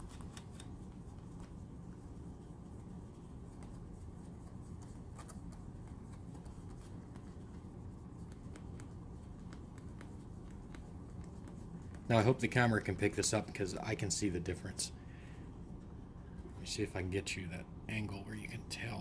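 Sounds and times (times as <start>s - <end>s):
cloth rubbing on plastic: 0.0s - 14.2s
low steady hum: 0.0s - 19.0s.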